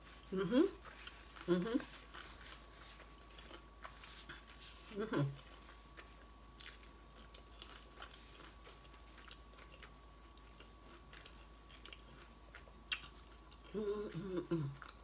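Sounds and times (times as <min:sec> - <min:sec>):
person chewing food: 0:00.0 - 0:13.8, 0:14.6 - 0:15.0
person humming mm: 0:13.7 - 0:14.8.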